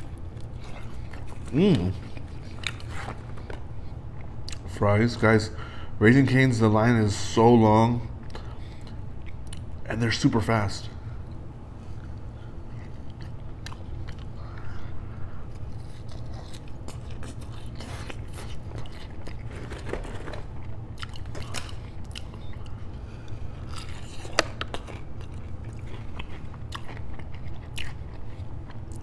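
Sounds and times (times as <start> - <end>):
person chewing crunchy food: 0.0 - 4.7, 11.8 - 29.0
steady low hum: 0.0 - 29.0.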